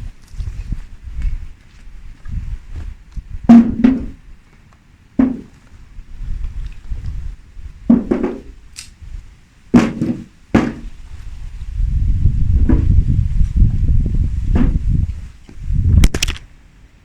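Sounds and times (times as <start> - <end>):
firewood knocking together: 5.2 - 5.6, 7.9 - 8.5, 9.8 - 10.9.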